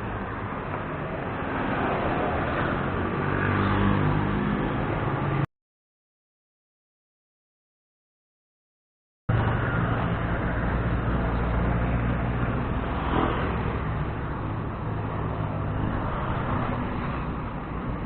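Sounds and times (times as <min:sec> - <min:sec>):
road noise: 0:00.0 - 0:05.5, 0:09.3 - 0:18.0
vehicle engine humming: 0:09.3 - 0:18.0.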